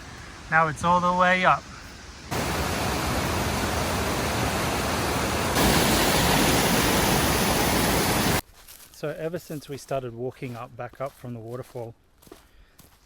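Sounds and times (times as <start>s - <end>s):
waterfall rushing: 2.3s - 8.4s.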